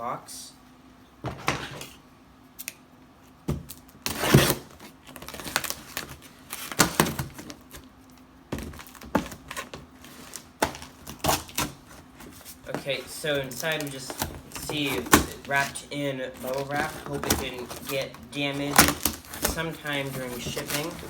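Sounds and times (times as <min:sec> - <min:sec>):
cardboard rustling and tearing: 0:03.7 - 0:07.9, 0:08.5 - 0:21.0.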